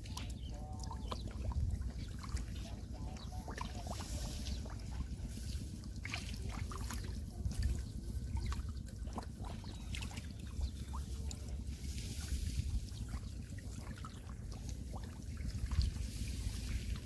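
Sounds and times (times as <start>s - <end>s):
low rumble: 0.0s - 17.0s
muddy water splashing: 0.0s - 17.0s.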